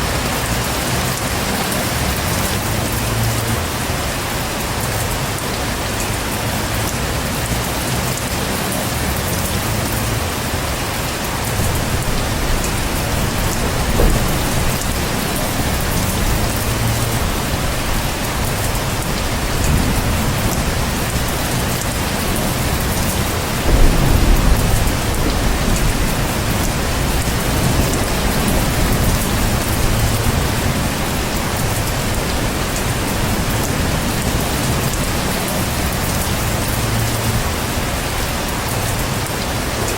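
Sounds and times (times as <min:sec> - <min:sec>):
heavy rain: 0:00.0 - 0:39.9
thunder rumbling: 0:11.2 - 0:39.1.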